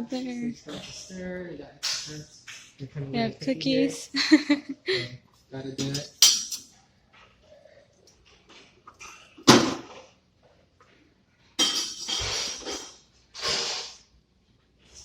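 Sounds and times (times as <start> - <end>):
kitchenware rattling and clinking: 5.8 - 6.7, 11.6 - 13.0.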